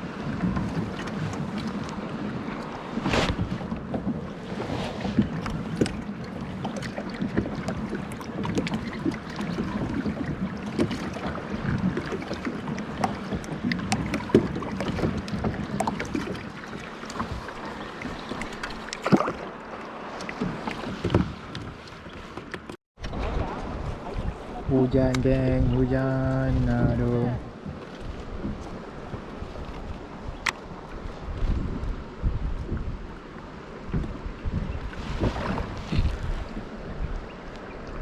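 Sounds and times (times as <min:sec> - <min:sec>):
wind on microphone: 0:00.0 - 0:16.6, 0:23.0 - 0:38.0
water splashing around kayak: 0:00.0 - 0:38.0.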